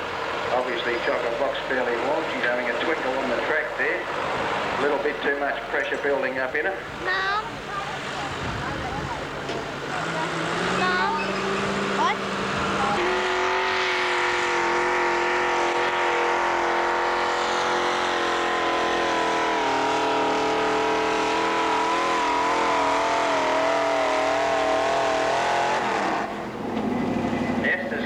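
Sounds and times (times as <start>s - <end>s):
tractor engine at high revs: 7.1s - 28.0s.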